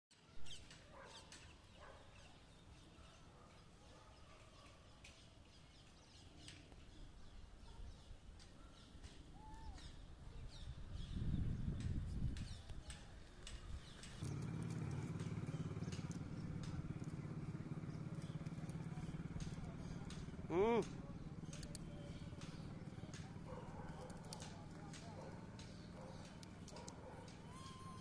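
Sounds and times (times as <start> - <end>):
birds chirping: 0.2 - 28.0.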